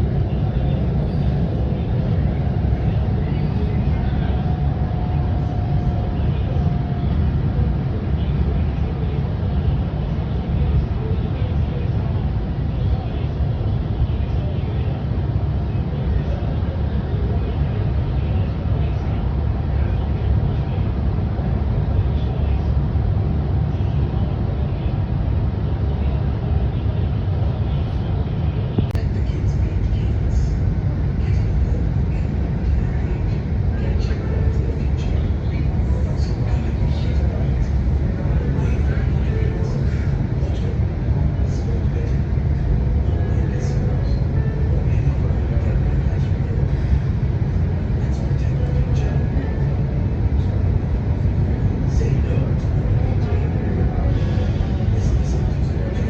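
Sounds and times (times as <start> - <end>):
train rumbling in motion: 0.0 - 56.0.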